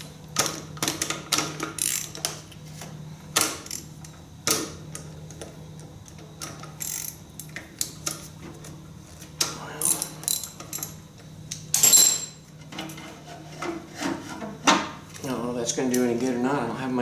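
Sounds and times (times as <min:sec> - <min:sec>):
ratchet wrench clicking: 0:01.6 - 0:02.4, 0:06.8 - 0:08.2, 0:09.8 - 0:11.0.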